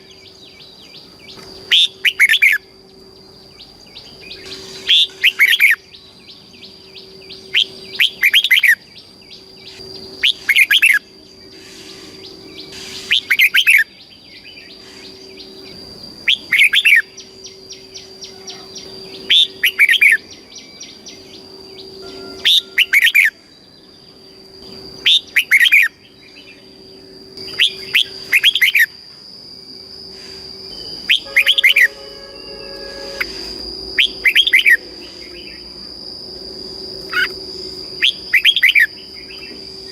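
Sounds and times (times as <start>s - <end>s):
steady high whine: 0.0s - 39.9s
bird whistled phrase: 22.0s - 23.4s, 31.1s - 34.8s.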